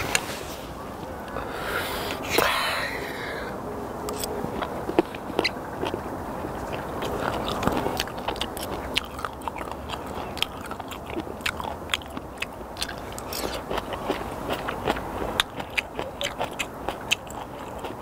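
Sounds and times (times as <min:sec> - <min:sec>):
man chewing with wet smacking: 0:04.1 - 0:18.0.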